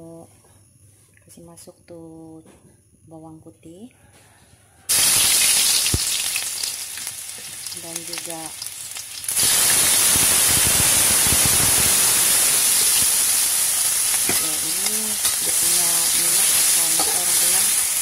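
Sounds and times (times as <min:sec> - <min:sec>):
food sizzling in hot oil: 0:04.9 - 0:18.0.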